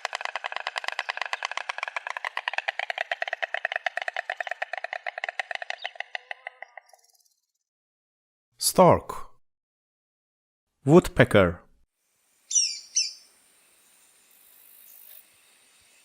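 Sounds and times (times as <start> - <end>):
stork clattering its bill: 0.0 - 7.1.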